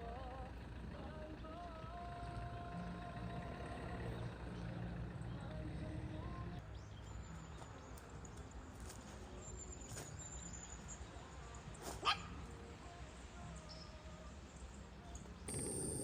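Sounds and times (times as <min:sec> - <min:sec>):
dog barking: 0:11.9 - 0:12.4.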